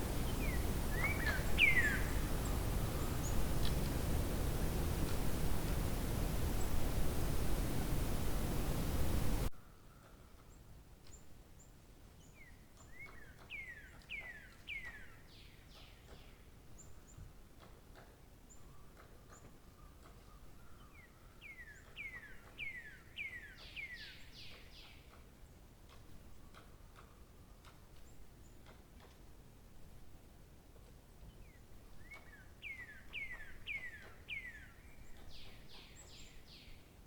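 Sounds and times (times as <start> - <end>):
loud hiss: 0.0 - 9.5
songbird singing: 0.0 - 17.2, 18.5 - 25.6, 31.1 - 37.0.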